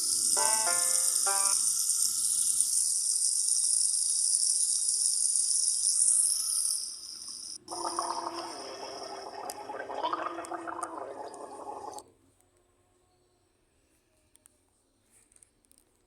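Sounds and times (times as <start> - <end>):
running water hissing: 0.0 - 12.0
low uneven watery sound: 7.6 - 12.0.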